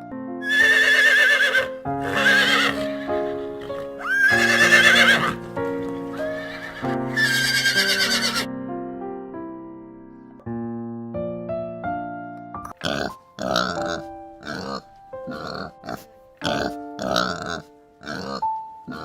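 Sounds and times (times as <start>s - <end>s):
gentle electric piano music: 0.0s - 0.5s, 1.7s - 19.0s
horse neighing: 0.4s - 8.5s, 12.8s - 19.0s.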